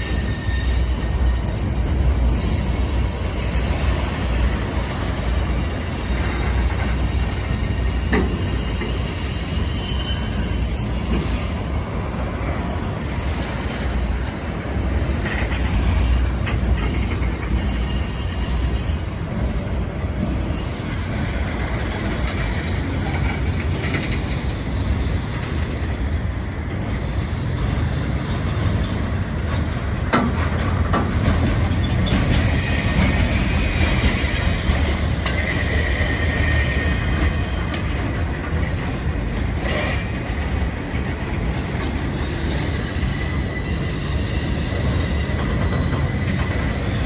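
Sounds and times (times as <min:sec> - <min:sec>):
wheel squeal: 0:00.0 - 0:01.5, 0:05.4 - 0:11.5, 0:14.8 - 0:19.1, 0:31.5 - 0:38.1, 0:41.4 - 0:47.0
freight cars rumbling on rails: 0:00.0 - 0:47.0.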